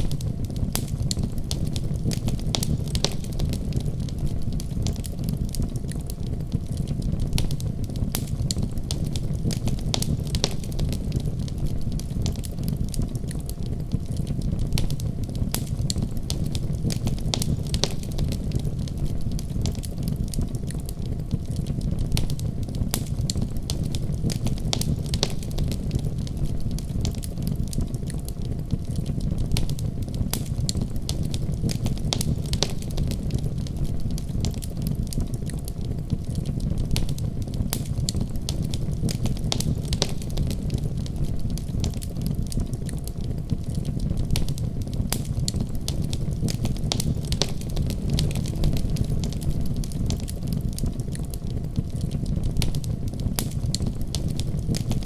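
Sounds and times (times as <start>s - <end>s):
low fire rumble: 0.0s - 55.0s
wood fire crackling and popping: 0.0s - 55.0s.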